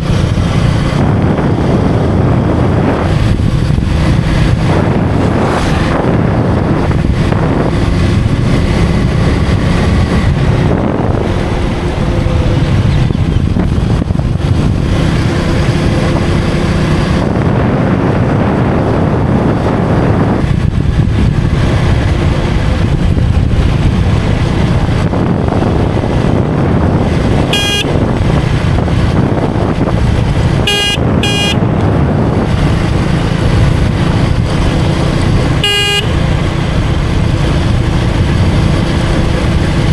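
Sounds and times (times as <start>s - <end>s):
motorcycle engine cruising: 0.0s - 39.9s
wind and tyre rumble: 0.0s - 39.9s
vehicle horn honking: 27.5s - 28.0s, 30.6s - 31.7s, 35.6s - 36.3s.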